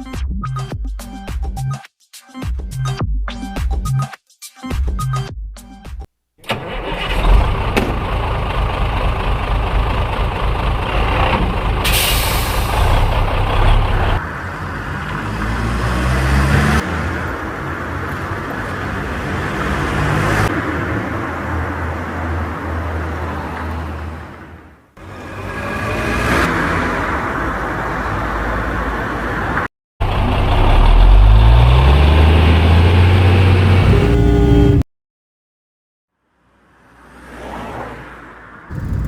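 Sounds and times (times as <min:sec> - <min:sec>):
road noise: 0:06.4 - 0:34.9, 0:36.1 - 0:39.0
car engine running: 0:38.7 - 0:39.0.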